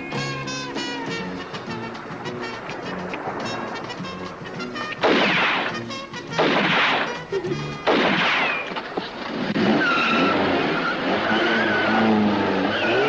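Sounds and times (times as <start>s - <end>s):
film music with loud hits: 2.8s - 8.7s
car tyres squealing: 8.3s - 13.0s.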